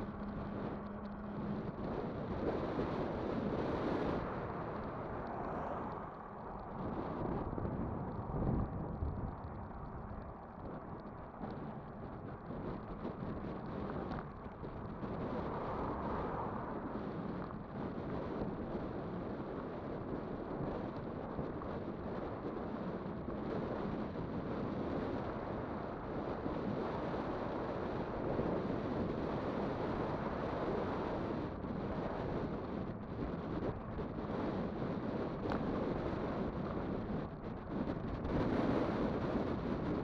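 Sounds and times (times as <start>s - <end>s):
tyre and road rumble: 0.0s - 40.0s
wind rushing over microphone: 0.0s - 40.0s.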